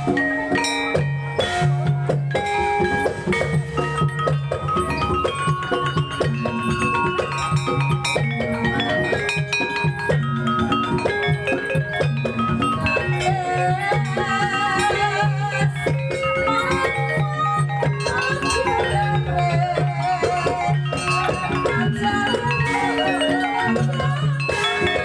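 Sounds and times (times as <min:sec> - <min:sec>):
gamelan music: 0:00.0 - 0:25.0
struck metallophone notes: 0:00.0 - 0:25.0.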